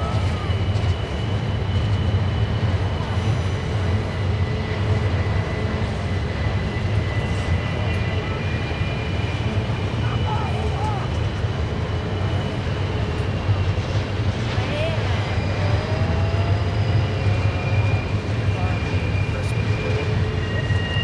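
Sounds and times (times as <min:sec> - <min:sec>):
train cars rumbling on rails: 0:00.0 - 0:21.0
high wheel squeal: 0:14.6 - 0:21.0.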